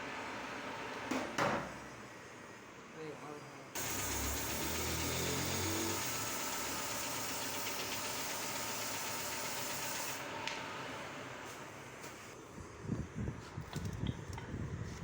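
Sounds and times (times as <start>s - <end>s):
machinery hissing: 3.8s - 10.3s.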